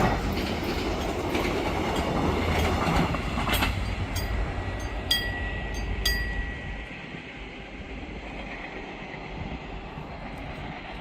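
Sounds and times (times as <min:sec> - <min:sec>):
train wheel clink: 0:00.0 - 0:07.2
train rumbling: 0:00.0 - 0:11.0.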